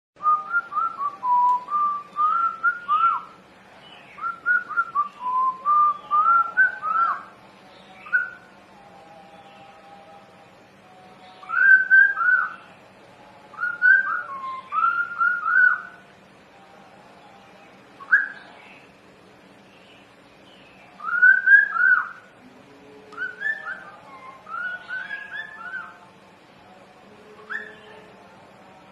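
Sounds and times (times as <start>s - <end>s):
budgerigar whistling: 18.0s - 18.5s, 23.2s - 26.0s, 27.5s - 28.0s.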